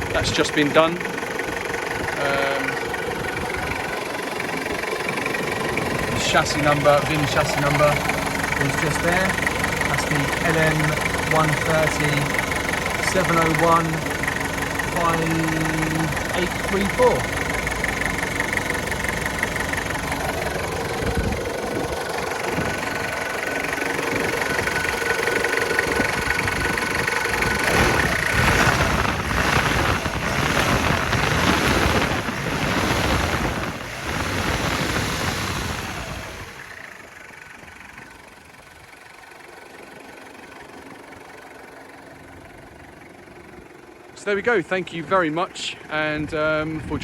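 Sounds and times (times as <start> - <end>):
diesel engine idling: 0.0 - 47.0.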